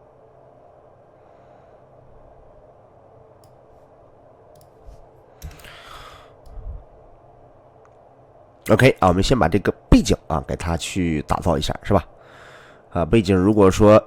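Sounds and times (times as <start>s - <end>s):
steady low hum: 0.0s - 14.0s
computer mouse clicks: 3.4s - 3.6s, 4.5s - 4.8s, 5.4s - 5.7s.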